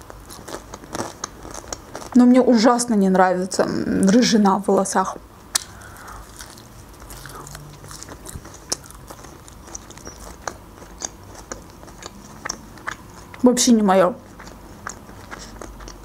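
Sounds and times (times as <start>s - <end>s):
person chewing herbs: 0.0s - 2.2s, 5.5s - 13.5s, 14.2s - 16.0s
mouth clicks: 5.5s - 6.6s.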